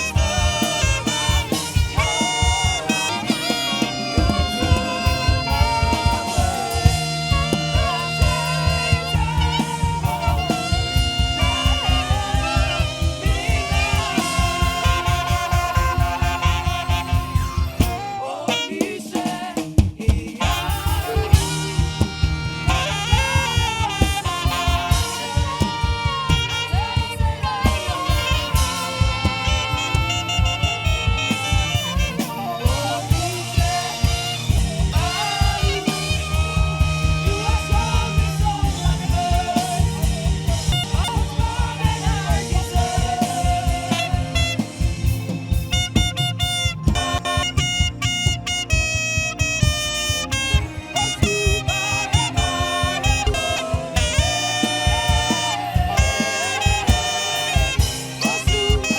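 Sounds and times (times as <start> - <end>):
live band music: 0.0 - 58.9
saxophone: 0.0 - 58.9.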